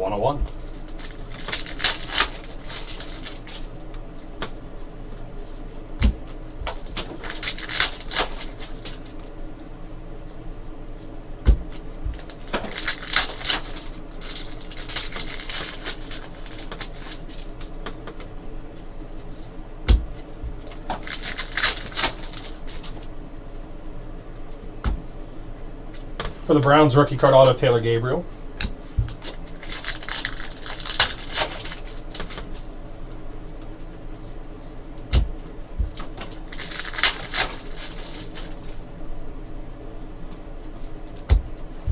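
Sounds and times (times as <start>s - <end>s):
cards and wrappers rustling: 0.5s - 4.8s, 6.7s - 9.3s, 11.7s - 18.0s, 20.5s - 23.1s, 29.0s - 32.7s, 35.8s - 38.8s.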